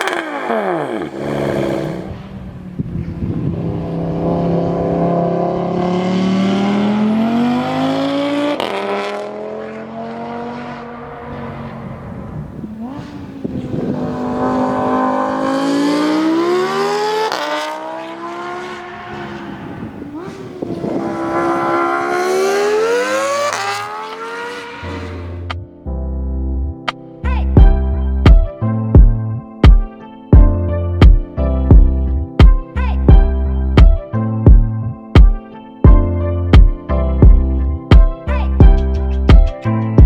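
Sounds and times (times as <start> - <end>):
exhaust crack: 0.0 - 3.0, 19.1 - 25.6
car exhaust revving: 0.0 - 25.5.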